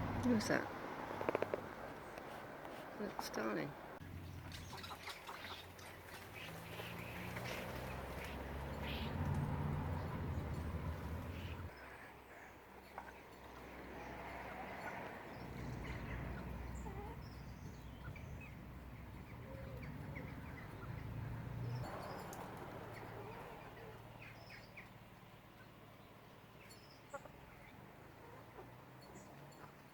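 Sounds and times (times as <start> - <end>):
low rumble: 0.0 - 1.0
starlings chirping: 4.2 - 13.6, 14.8 - 27.9.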